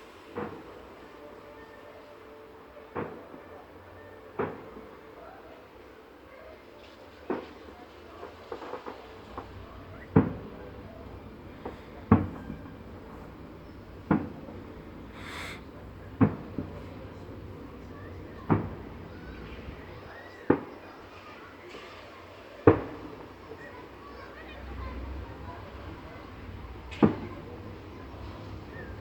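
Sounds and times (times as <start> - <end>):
brief hiss: 15.1 - 15.6.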